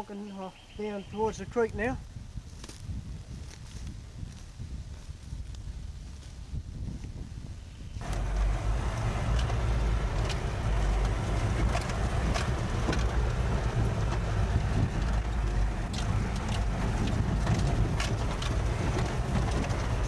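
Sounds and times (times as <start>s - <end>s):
loud low rumble: 8.0s - 20.0s
sharp knocks and clicks: 8.0s - 20.0s.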